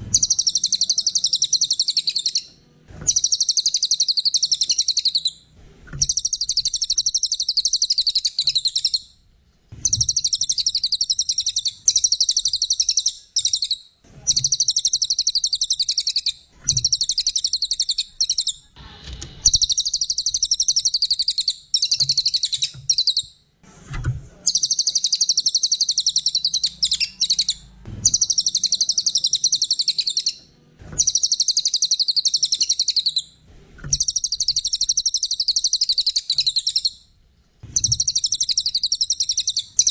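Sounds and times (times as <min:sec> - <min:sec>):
songbird high-pitched trills: 0:00.1 - 0:02.5, 0:24.5 - 0:30.4, 0:31.0 - 0:33.2.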